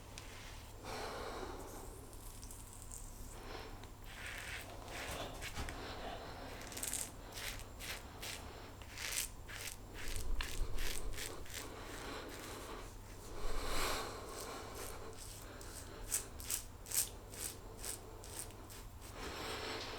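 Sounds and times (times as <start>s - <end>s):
razor scraping stubble: 4.0s - 19.2s.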